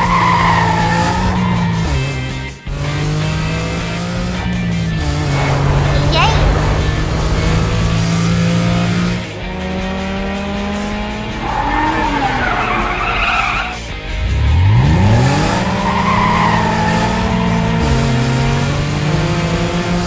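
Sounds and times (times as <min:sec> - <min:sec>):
cartoon engine revving: 0:00.0 - 0:12.4
cartoon tyre skid screeching: 0:00.0 - 0:18.6
background music: 0:00.0 - 0:20.0.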